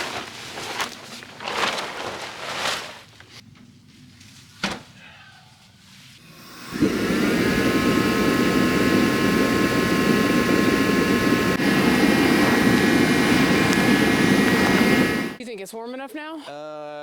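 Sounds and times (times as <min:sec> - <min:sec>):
faint steady whine: 0:06.2 - 0:15.4.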